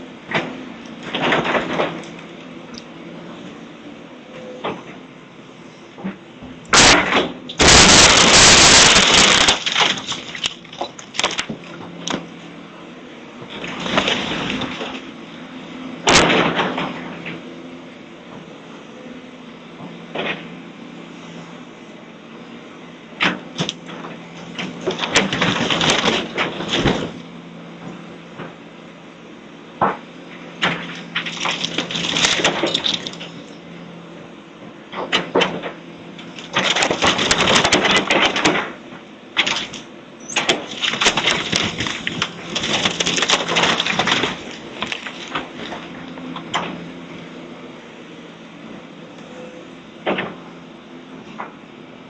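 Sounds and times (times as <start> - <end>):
heavy machine engine hum: 0.0 - 52.0
demolition debris crashing: 1.0 - 2.3, 6.7 - 12.2, 13.5 - 15.0, 16.0 - 17.0, 24.5 - 27.2, 30.6 - 33.5, 36.3 - 38.8, 39.4 - 46.7.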